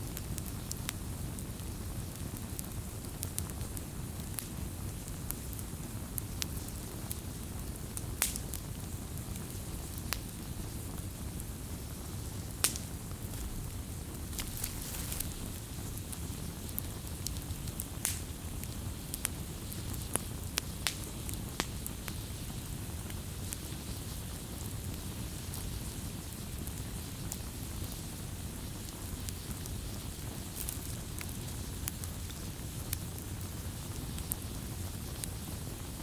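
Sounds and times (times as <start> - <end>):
wood fire crackling and popping: 0.0 - 36.0
low rush of flames: 0.1 - 24.7.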